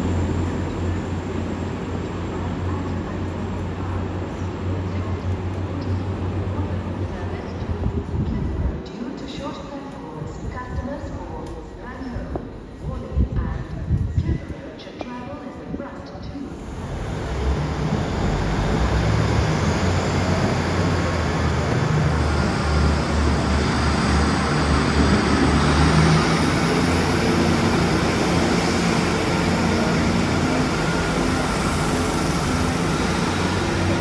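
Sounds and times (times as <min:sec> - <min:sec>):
train wheels on rails: 0:16.5 - 0:34.0.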